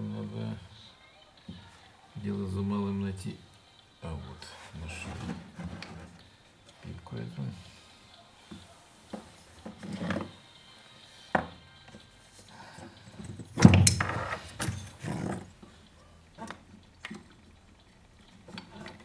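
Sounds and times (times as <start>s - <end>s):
loud thunk: 13.6s - 14.9s.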